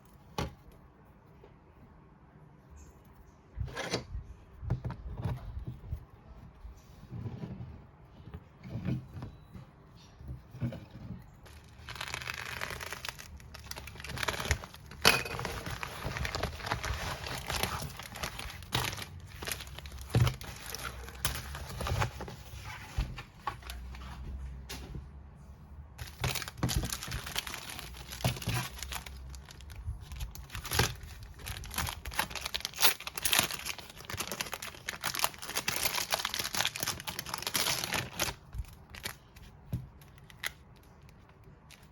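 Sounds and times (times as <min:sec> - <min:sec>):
packaging crinkling and tearing: 0:11.4 - 0:22.9, 0:26.0 - 0:41.9.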